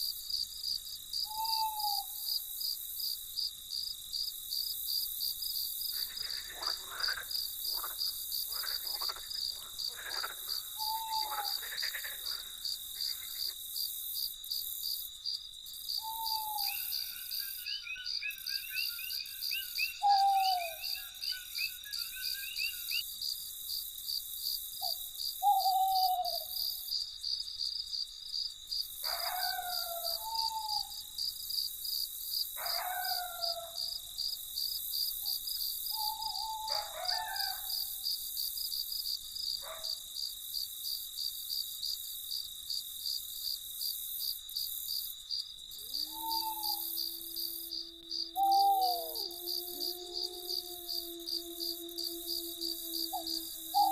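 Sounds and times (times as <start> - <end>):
crickets chirping: 0.0 - 53.9
night bird falling calls: 1.3 - 2.1, 6.0 - 13.6, 16.0 - 23.0, 24.8 - 26.6, 29.0 - 31.0, 35.9 - 37.8, 45.8 - 53.9.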